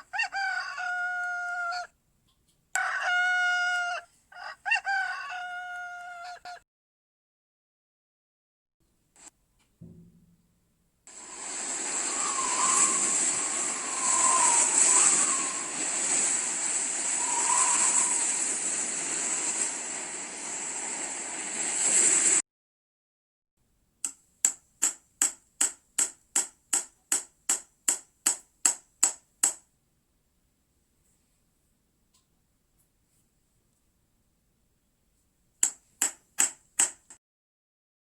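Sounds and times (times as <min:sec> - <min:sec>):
steady rushing noise: 0:11.1 - 0:22.4.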